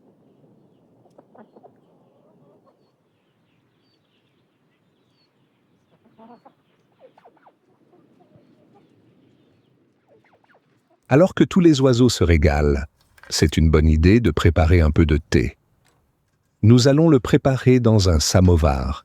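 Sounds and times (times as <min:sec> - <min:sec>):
chickens clucking: 0:01.0 - 0:02.9, 0:05.9 - 0:08.9.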